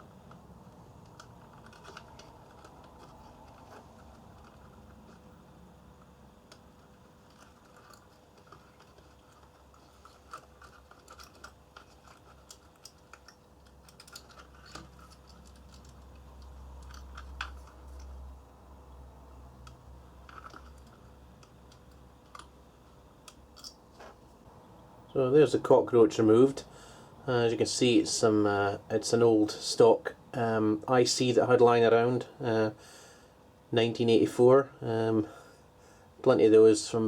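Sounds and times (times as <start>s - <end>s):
hand tools clicking and scraping: 1.0s - 18.2s.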